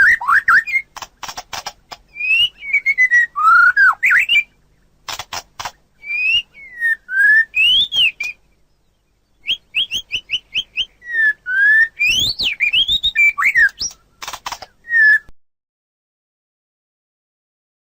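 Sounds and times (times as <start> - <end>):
whistled birdsong: 0.0 - 0.9, 2.0 - 5.0, 5.7 - 15.3
scratchy bird clicking notes: 0.0 - 2.1, 5.0 - 5.8, 7.8 - 8.4, 12.0 - 14.8.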